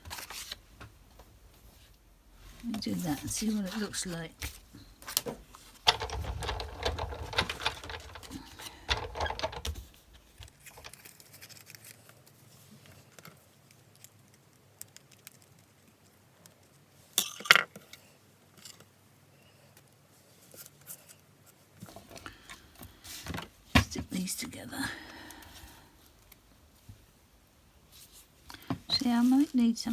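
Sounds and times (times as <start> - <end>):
craft supplies clattering on desk: 3.0 - 11.0.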